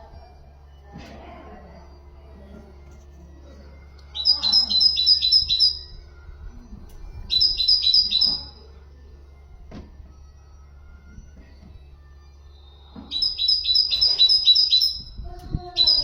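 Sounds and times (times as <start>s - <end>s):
steady low hum: 0.0s - 16.0s
songbird singing repeated notes: 4.0s - 8.9s, 12.4s - 16.0s.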